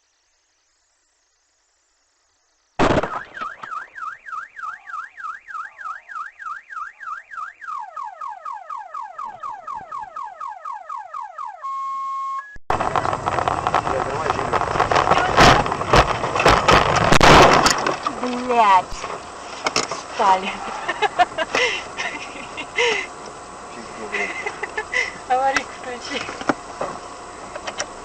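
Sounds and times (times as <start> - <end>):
car alarm: 3.1 - 12.6
road or engine noise: 12.7 - 28.0.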